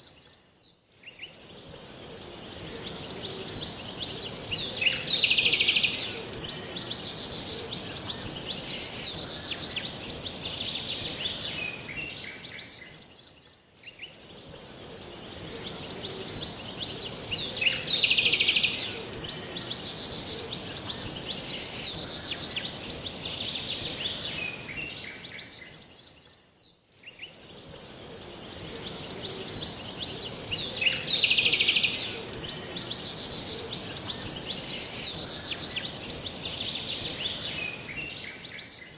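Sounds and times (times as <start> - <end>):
steady high hiss: 27.1 - 38.9.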